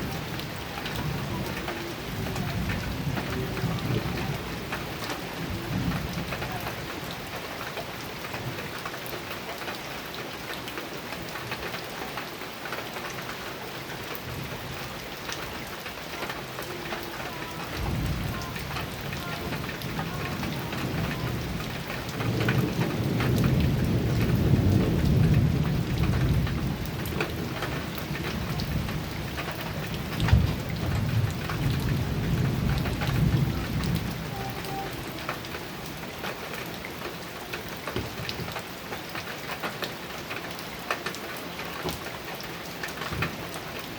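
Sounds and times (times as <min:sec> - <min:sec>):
thunder rumbling: 0:00.0 - 0:06.9, 0:16.7 - 0:36.7
heavy rain on a metal roof: 0:00.0 - 0:43.9.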